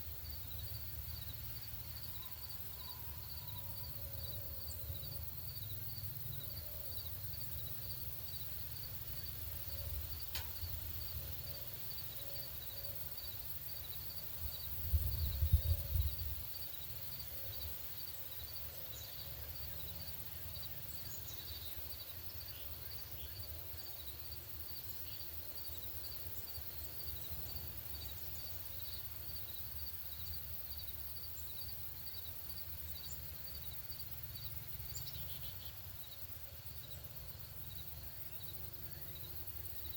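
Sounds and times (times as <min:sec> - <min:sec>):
wind rumble on microphone: 0:14.7 - 0:16.4.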